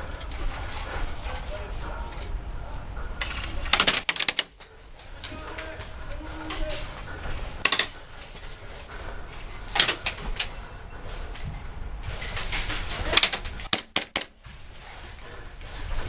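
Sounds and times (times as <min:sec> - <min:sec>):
outdoor background noise: 0:00.0 - 0:16.0
airsoft gun shots: 0:13.1 - 0:14.3.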